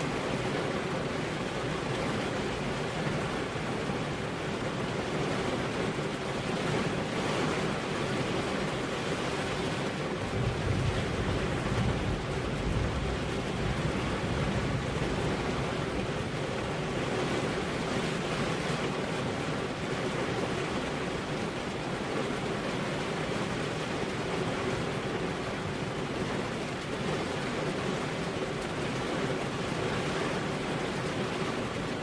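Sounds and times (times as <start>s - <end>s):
steady rain: 0.0s - 32.0s
wind: 0.0s - 32.0s.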